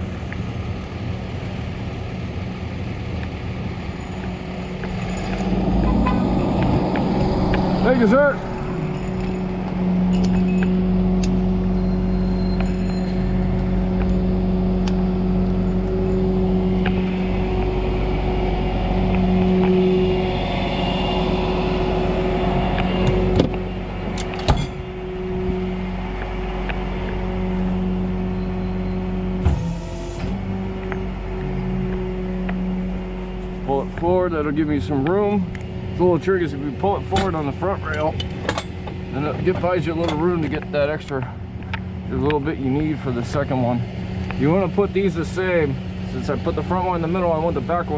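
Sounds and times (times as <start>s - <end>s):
motor humming: 4.8s - 36.1s.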